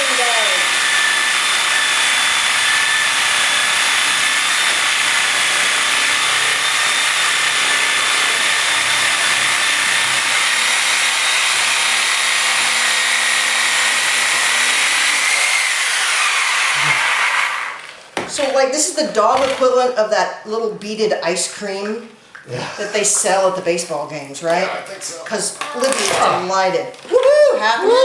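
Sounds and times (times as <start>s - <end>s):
reciprocating saw motor whine: 0.0s - 17.8s
saw blade rasping: 0.0s - 17.8s.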